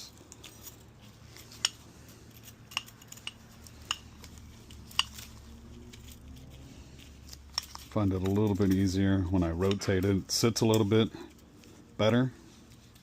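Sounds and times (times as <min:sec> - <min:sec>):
piston ring metallic clicks: 0:01.4 - 0:05.3.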